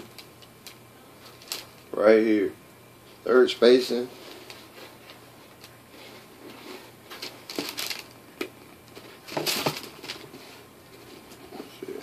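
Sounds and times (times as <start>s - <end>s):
sneaker handling rustles and knocks: 9.0s - 10.4s.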